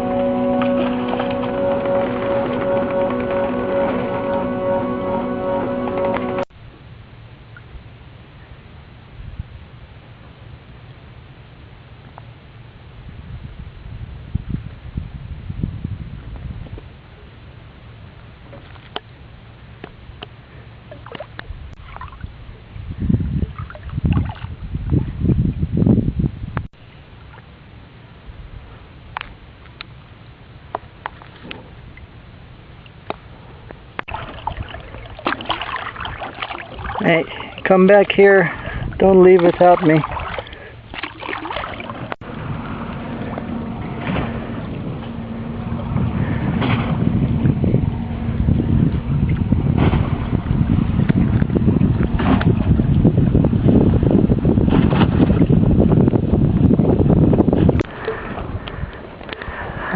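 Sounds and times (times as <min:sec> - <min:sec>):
water splashing around boat: 0:00.0 - 0:06.5, 0:18.4 - 0:22.7, 0:23.3 - 0:25.2, 0:29.2 - 0:56.6
wind gusts buffeting microphone: 0:13.0 - 0:16.9, 0:21.4 - 0:26.7, 0:35.9 - 0:40.8, 0:41.9 - 0:59.9.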